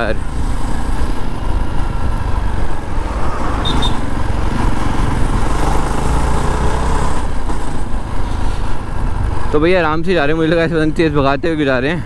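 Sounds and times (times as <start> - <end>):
road noise: 0.0 - 12.0
high double beep: 3.6 - 4.0.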